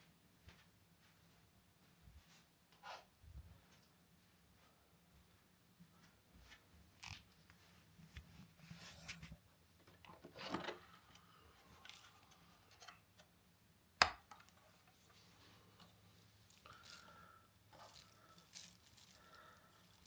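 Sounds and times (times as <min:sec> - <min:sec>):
faint rustling: 0:14.6 - 0:20.0.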